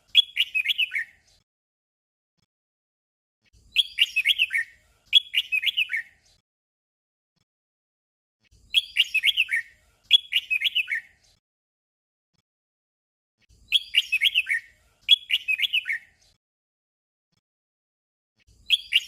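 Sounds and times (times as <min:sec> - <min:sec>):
bulbul singing whistled notes: 0:00.0 - 0:01.3, 0:03.6 - 0:06.2, 0:08.6 - 0:11.2, 0:13.6 - 0:16.2, 0:18.5 - 0:19.0.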